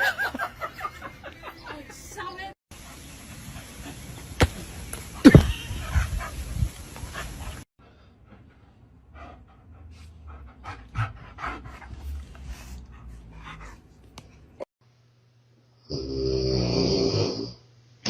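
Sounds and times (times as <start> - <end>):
dog panting: 8.2 - 14.6.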